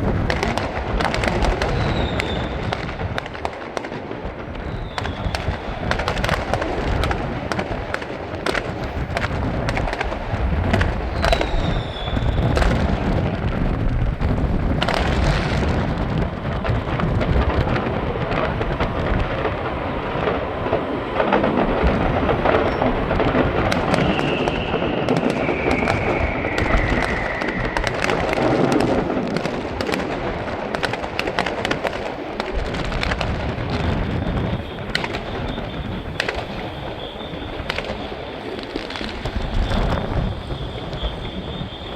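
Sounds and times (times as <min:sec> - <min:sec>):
fireworks booming and crackling: 0:00.0 - 0:41.9
falling firework whistles: 0:00.4 - 0:03.5, 0:04.6 - 0:13.3, 0:21.9 - 0:30.2, 0:32.8 - 0:41.9.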